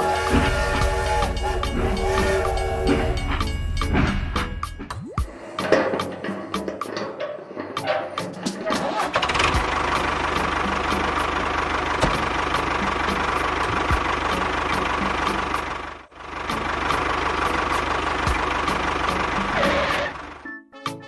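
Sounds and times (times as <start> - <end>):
small engine knocking: 9.1 - 20.4.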